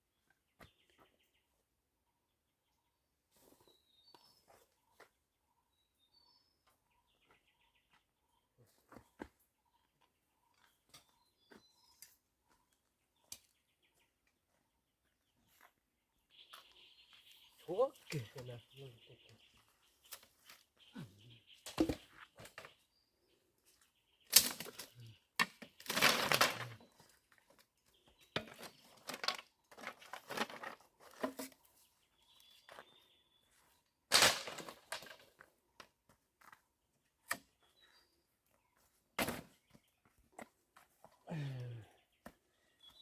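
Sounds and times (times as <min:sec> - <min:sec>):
sharp cracks: 0:34.1 - 0:34.8.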